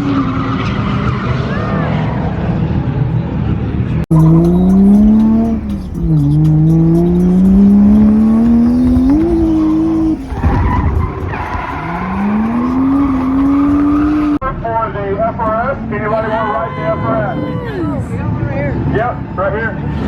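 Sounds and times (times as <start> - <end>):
tyres squealing and skidding: 0.0 - 3.0, 4.1 - 14.4
car engine revving high: 4.1 - 14.4.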